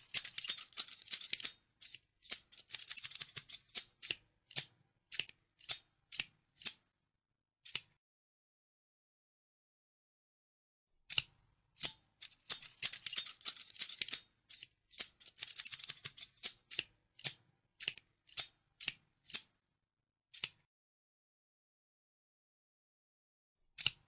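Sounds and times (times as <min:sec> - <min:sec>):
scissors snipping: 0:00.0 - 0:06.8, 0:07.6 - 0:08.0, 0:11.1 - 0:19.5, 0:20.3 - 0:20.7, 0:23.8 - 0:24.0.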